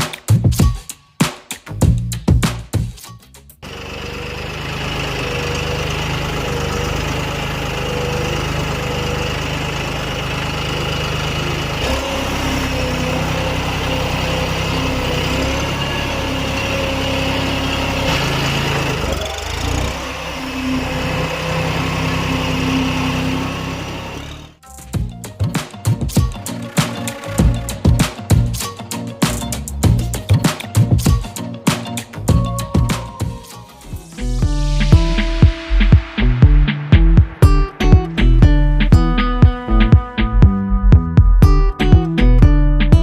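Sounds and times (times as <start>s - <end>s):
small motor droning: 3.6s - 24.6s.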